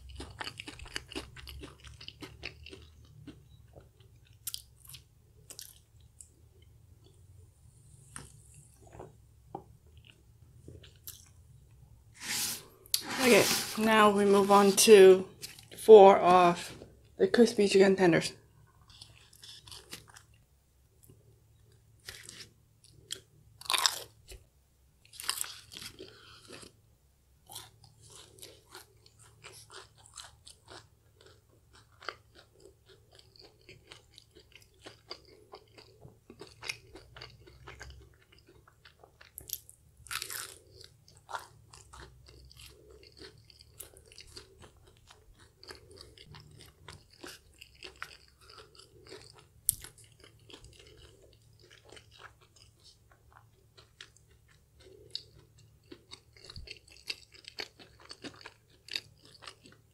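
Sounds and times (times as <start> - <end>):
crackly chewing: 0.0 - 11.8, 18.6 - 24.4, 25.0 - 26.8, 27.4 - 59.9
crunchy bites: 22.0 - 24.4.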